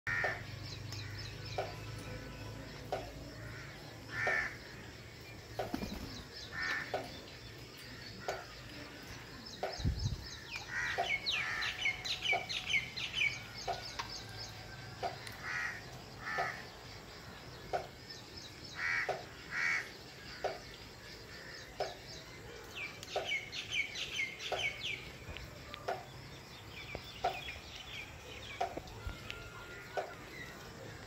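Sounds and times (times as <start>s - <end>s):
falling bird chirps: 0.1s - 14.4s.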